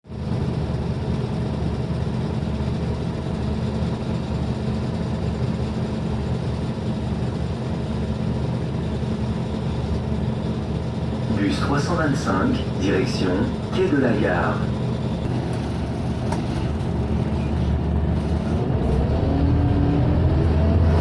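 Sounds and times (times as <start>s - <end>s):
bus engine idling hum: 0.1s - 21.0s.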